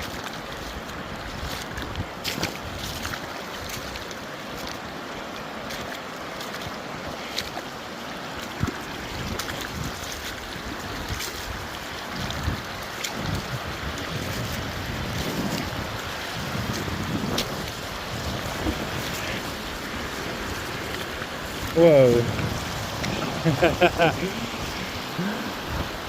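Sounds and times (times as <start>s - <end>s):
wind on microphone: 0.0s - 4.0s, 8.6s - 26.0s
river rushing over rocks: 0.0s - 26.0s.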